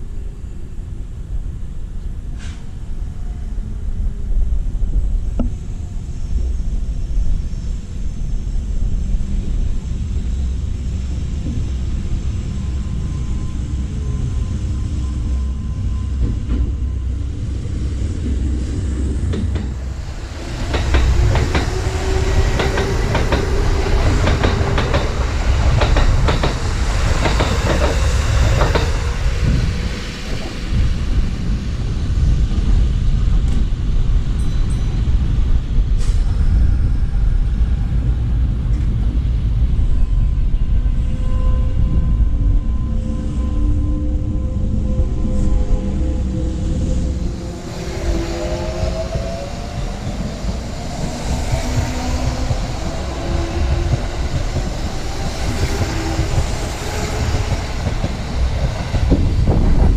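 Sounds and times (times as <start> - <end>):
train wheels clicking over rail joints: 20.6 - 29.6.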